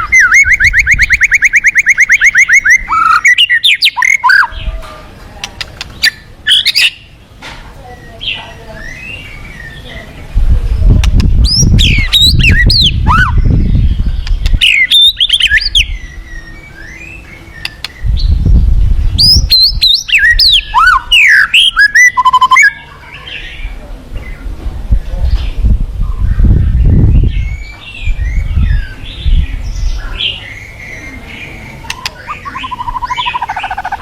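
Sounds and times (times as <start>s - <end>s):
bird singing whistled phrases: 0.0s - 4.6s, 6.0s - 7.1s, 11.4s - 18.4s, 19.2s - 22.8s, 30.2s - 34.0s.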